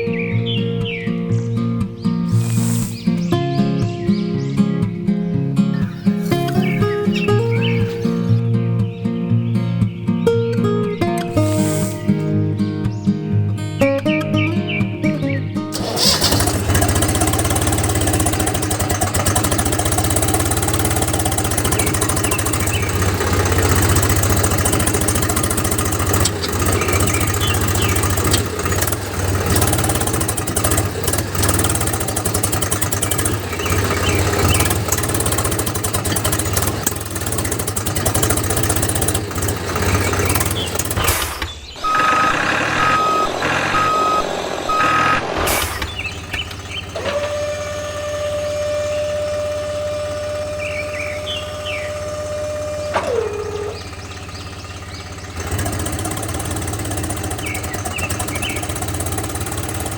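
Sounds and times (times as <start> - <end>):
small engine humming and rattling: 0.0 - 5.0, 5.6 - 8.5, 10.4 - 13.0, 14.7 - 59.9
evenly spaced beeps: 41.8 - 46.5.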